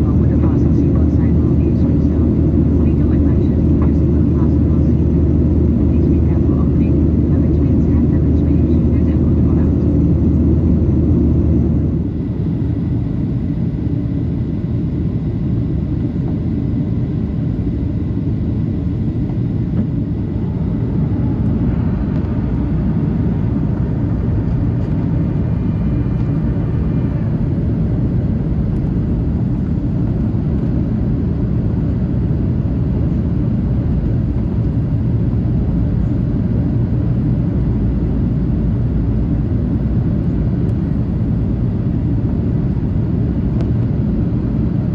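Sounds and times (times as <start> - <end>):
airplane cabin engine rumble: 0.0 - 44.9.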